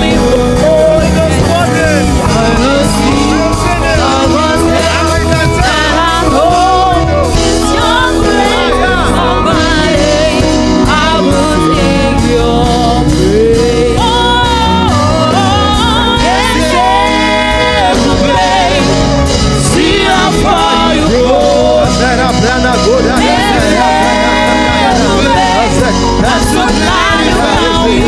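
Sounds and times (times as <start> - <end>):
drums: 0.0 - 28.0
guitar: 0.0 - 28.0
keyboard: 0.0 - 28.0
people singing: 0.0 - 28.0.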